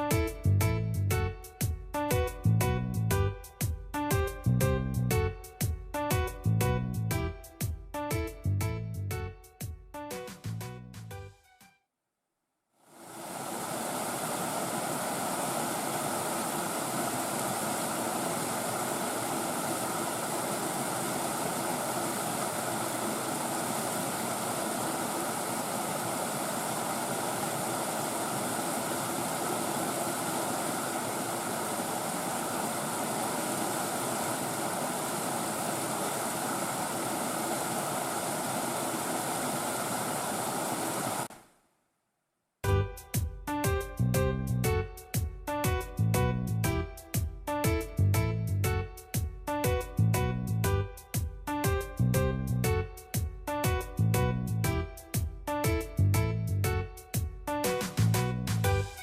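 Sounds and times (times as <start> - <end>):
stream rushing over waterfalls: 13.0 - 41.3.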